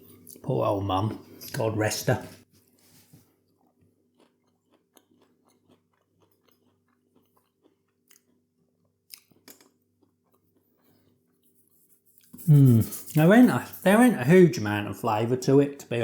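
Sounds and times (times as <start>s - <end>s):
chewing and mouth clicks: 3.5s - 11.4s.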